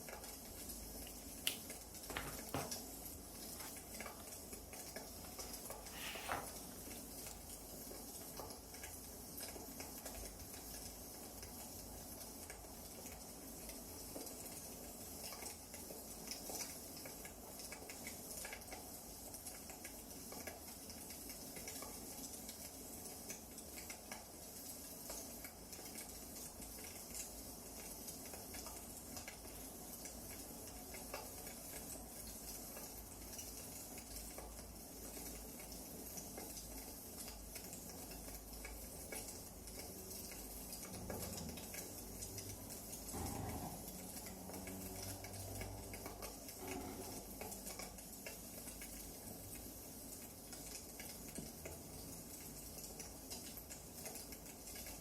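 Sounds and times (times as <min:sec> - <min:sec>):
wood fire crackling: 0:00.0 - 0:13.7.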